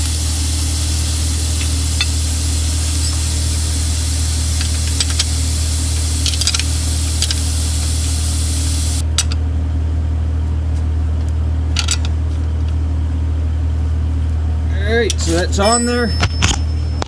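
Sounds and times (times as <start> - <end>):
air hissing: 0.0 - 9.1
low machine hum: 0.0 - 17.0.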